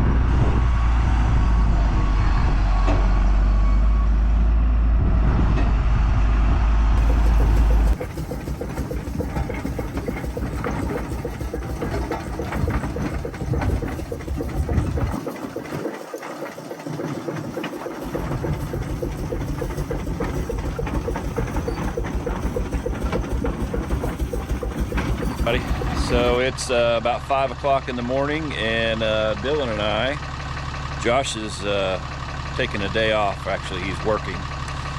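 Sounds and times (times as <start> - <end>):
deep engine rumble: 0.0 - 34.9
vehicle engine running: 7.0 - 34.9.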